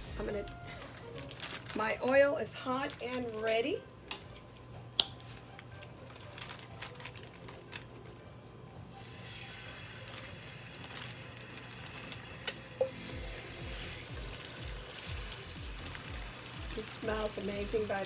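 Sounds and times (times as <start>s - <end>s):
oil sizzling in a frying pan: 8.9s - 18.0s.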